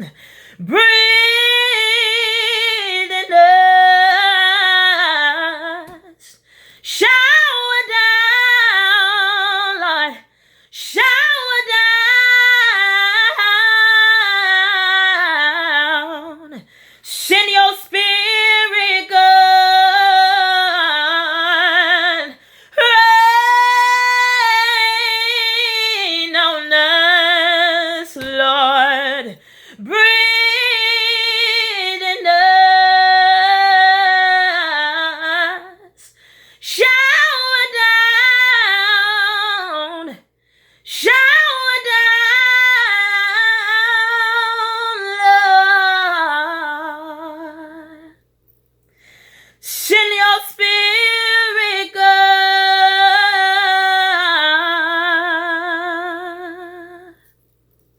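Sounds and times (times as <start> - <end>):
woman singing unaccompanied: 0.0 - 40.3, 40.9 - 48.2, 49.6 - 57.2
woman breathing: 0.1 - 0.7, 6.2 - 6.9, 10.2 - 10.8, 16.6 - 17.1, 22.3 - 22.8, 29.4 - 29.9, 36.0 - 36.7, 40.3 - 40.9, 48.9 - 49.6.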